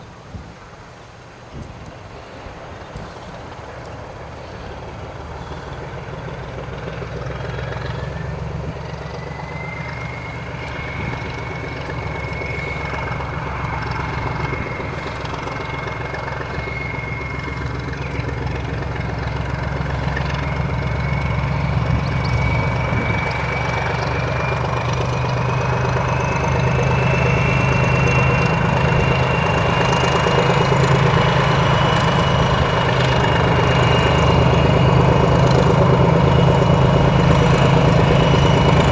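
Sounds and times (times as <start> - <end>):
diesel locomotive engine rumble: 0.0 - 38.9
high whistle rising in pitch: 7.9 - 18.8, 19.4 - 38.9.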